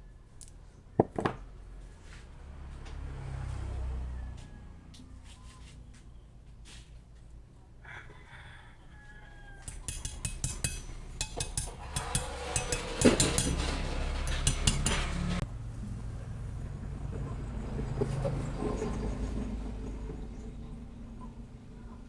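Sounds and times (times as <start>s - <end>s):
metal tools clinking: 9.6s - 15.4s.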